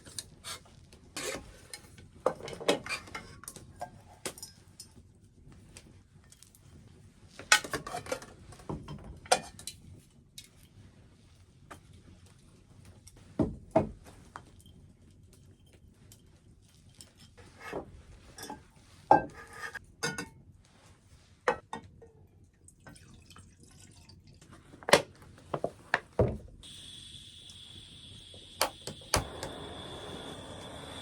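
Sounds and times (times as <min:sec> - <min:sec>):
metal pot and dishes clinking: 0:18.4 - 0:20.4
gas burner rushing: 0:26.6 - 0:31.0
gas hissing from camping stove: 0:26.6 - 0:31.0
stove igniter clicks: 0:28.6 - 0:31.0.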